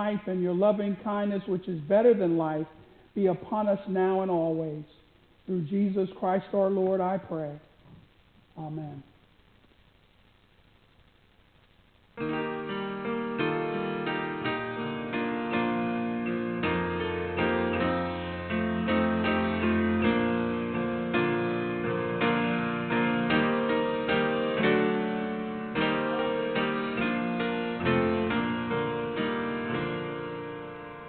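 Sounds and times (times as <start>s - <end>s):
slow piano chords: 12.2s - 31.0s.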